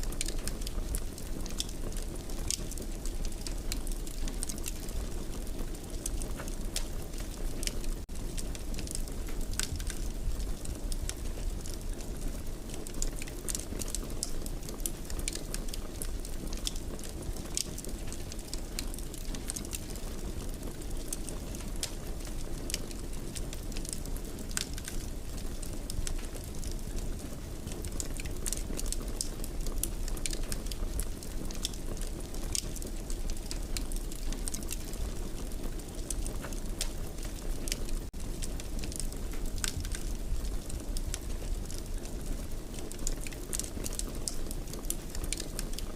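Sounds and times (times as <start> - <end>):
wood fire crackling and popping: 0.0 - 45.9.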